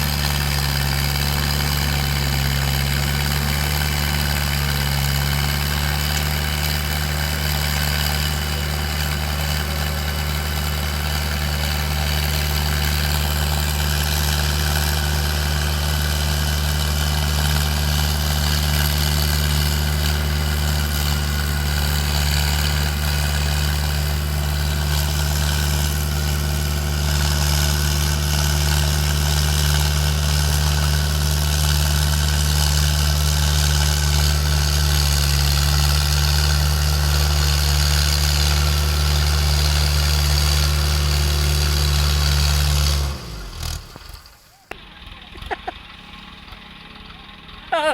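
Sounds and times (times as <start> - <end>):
tractor diesel engine idling: 0.0 - 47.9.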